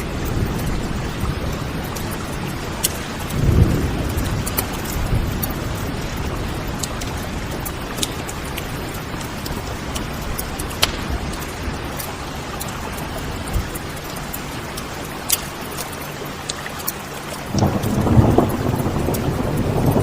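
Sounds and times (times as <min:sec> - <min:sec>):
steady rain: 0:00.0 - 0:20.0
wood fire crackling: 0:00.0 - 0:20.0
low roll of thunder: 0:03.2 - 0:07.7, 0:17.5 - 0:20.0.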